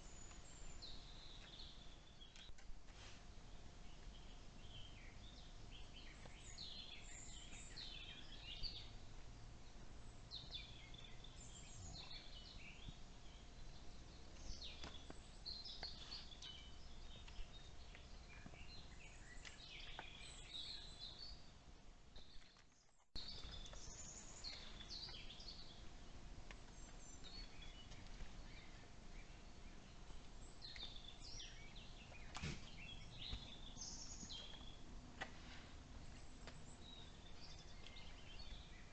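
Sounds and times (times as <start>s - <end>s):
birds chirping: 0.0s - 2.6s, 3.5s - 38.9s
low background hiss: 0.0s - 22.4s.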